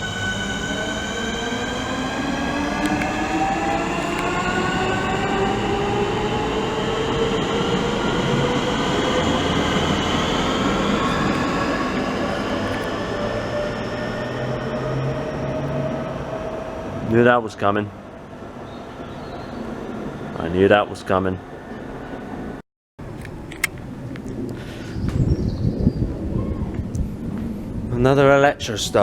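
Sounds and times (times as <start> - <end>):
electric train motors whining: 0.0 - 17.0
train rumble: 0.0 - 29.0.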